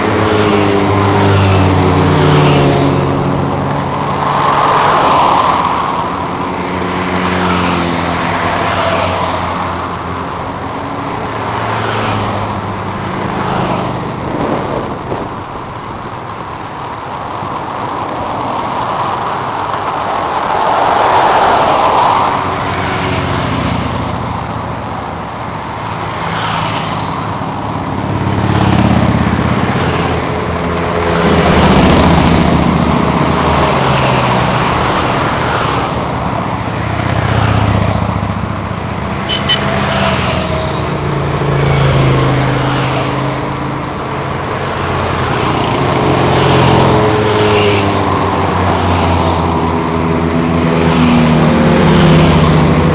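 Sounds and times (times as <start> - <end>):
motorcycles passing by: 0.0 - 52.9
passing traffic: 0.0 - 52.9.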